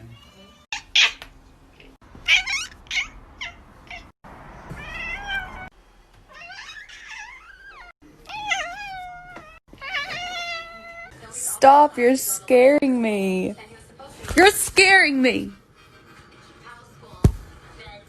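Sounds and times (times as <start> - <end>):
cats meowing: 2.2 - 4.1, 4.7 - 5.7, 6.3 - 11.1.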